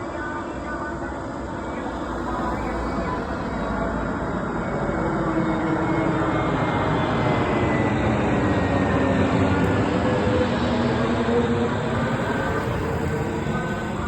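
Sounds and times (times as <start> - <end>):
airliner jet engines rushing: 0.0 - 14.0.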